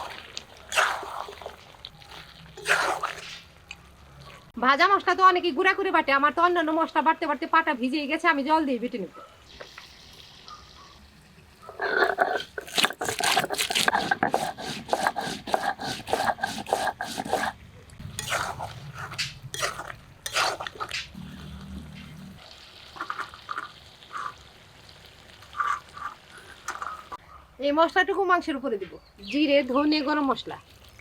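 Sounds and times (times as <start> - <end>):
stone roller grinding on stone slab: 11.7 - 20.9.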